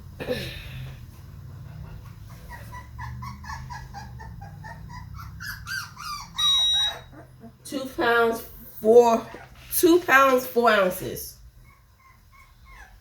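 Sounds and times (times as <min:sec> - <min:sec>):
puppy whimpering: 0:02.1 - 0:09.8, 0:11.6 - 0:13.0.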